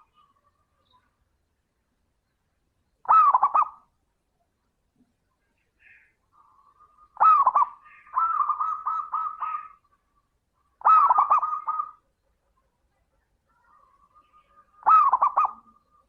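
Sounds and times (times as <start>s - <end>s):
dove cooing: 3.0s - 3.8s, 6.4s - 10.1s, 10.7s - 12.1s, 13.7s - 16.0s.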